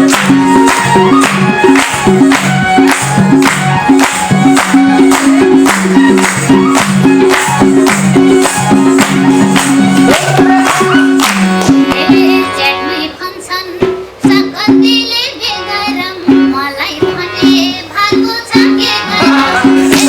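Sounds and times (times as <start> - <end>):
band with steady drum beat: 0.0 - 12.4, 18.2 - 20.0.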